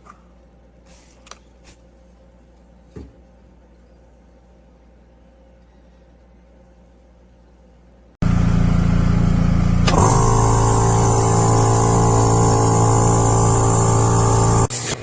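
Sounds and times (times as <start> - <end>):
air compressor running: 8.2 - 15.0
compressor click: 9.6 - 15.0.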